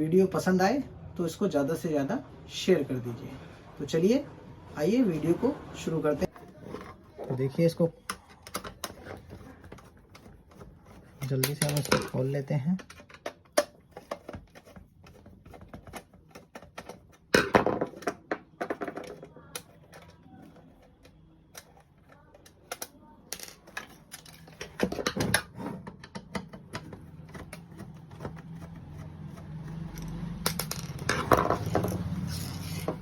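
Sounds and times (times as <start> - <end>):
tools and small parts clattering: 6.3 - 28.4, 29.7 - 33.0.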